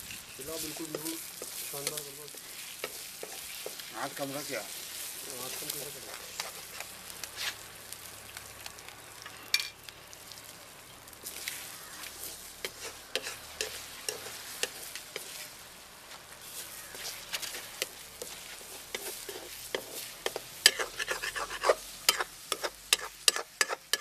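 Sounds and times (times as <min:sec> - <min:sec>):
food sizzling in oil: 0:00.0 - 0:24.0
spoon scraping and tapping pan: 0:00.7 - 0:03.8, 0:12.6 - 0:15.4, 0:17.0 - 0:24.0.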